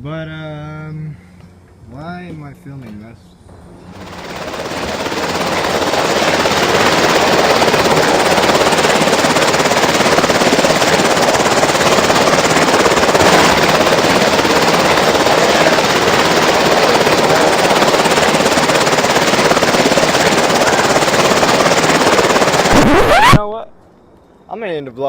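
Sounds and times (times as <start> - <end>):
helicopter flying overhead: 3.5 - 23.4.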